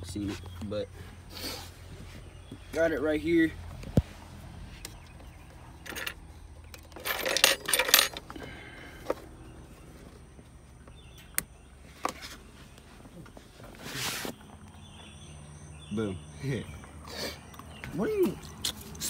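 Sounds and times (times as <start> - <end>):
small metal objects jingling: 6.8 - 8.3.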